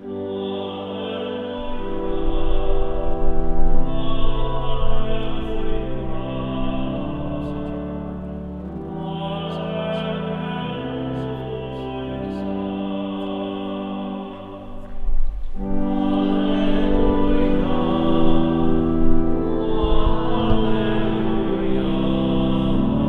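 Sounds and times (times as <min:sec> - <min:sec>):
choir singing sustained notes: 0:00.0 - 0:23.0
sustained accompanying chords: 0:00.0 - 0:23.0.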